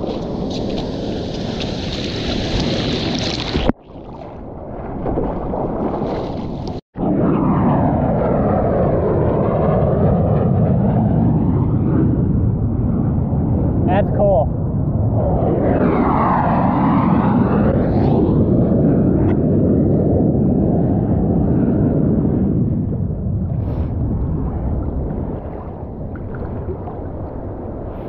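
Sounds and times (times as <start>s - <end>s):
wind and water noise: 0.0s - 28.0s
jet aircraft roaring overhead: 7.0s - 25.7s.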